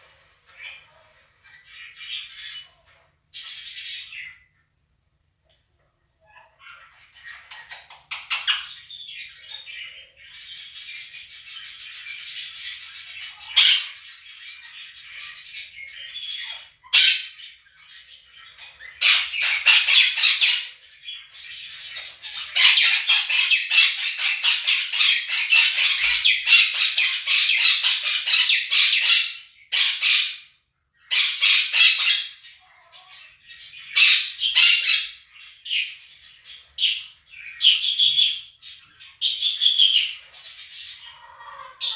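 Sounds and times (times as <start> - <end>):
budgerigars twittering from speaker: 6.3 - 41.9
parrots screeching: 6.4 - 10.5, 11.9 - 17.5, 18.3 - 20.8, 21.4 - 36.0, 36.6 - 41.9.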